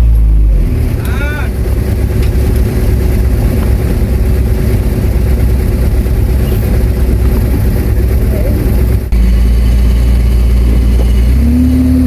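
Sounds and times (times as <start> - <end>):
heavy diesel engine rumbling: 0.0 - 12.0.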